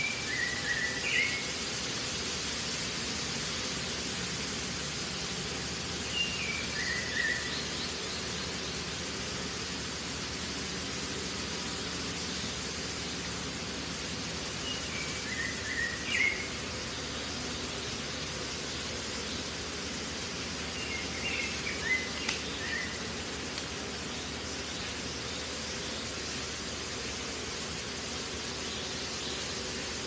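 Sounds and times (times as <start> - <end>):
steady background hiss: 0.0 - 30.0
small bird chirping: 20.7 - 26.2.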